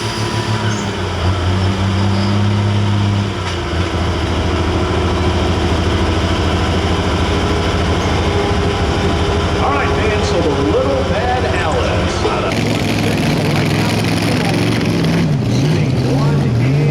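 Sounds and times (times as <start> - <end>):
tractor engine running loud: 0.0 - 16.9.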